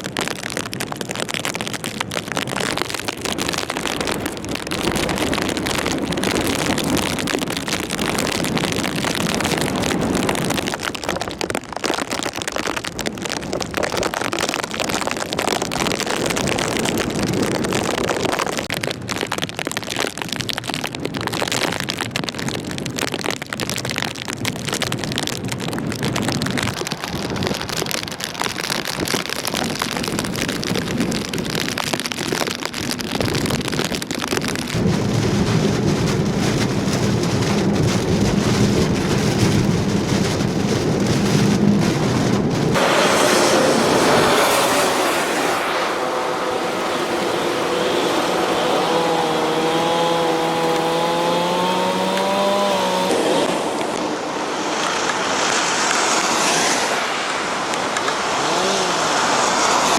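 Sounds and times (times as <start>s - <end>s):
heavy rain: 0.0s - 59.9s
wind: 0.0s - 59.9s
deep rumble: 33.3s - 54.6s.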